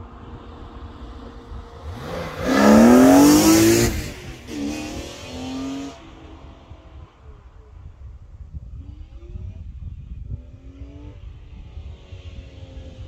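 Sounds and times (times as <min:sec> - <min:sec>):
car engine accelerating past: 0:00.7 - 0:07.5.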